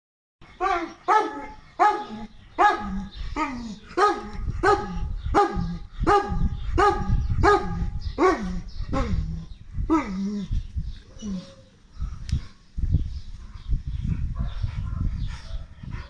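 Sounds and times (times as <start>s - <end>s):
dog barking: 0.6s - 3.1s, 4.0s - 9.1s, 14.4s - 15.8s.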